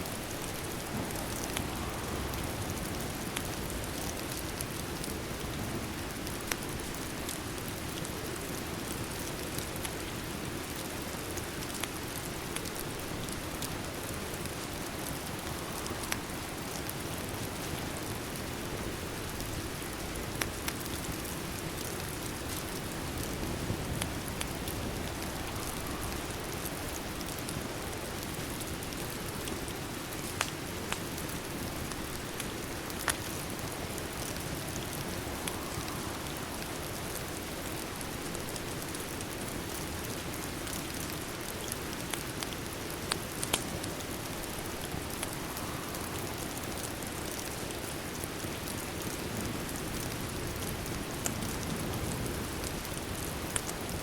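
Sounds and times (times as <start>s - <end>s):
steady rain: 0.0s - 54.0s
wood fire crackling: 0.0s - 54.0s.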